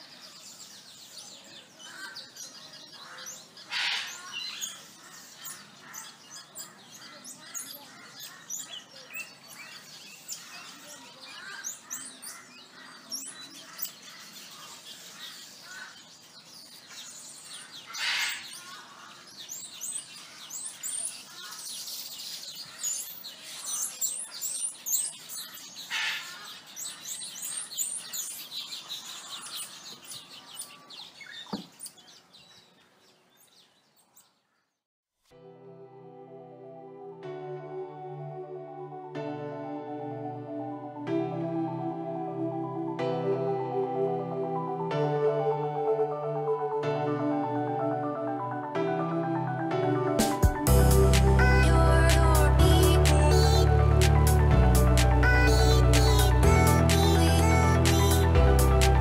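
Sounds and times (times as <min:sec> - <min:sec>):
small birds chirping: 0:00.0 - 0:34.8, 0:55.0 - 0:59.0
harsh bird call bursts: 0:03.0 - 0:04.8, 0:17.8 - 0:19.3.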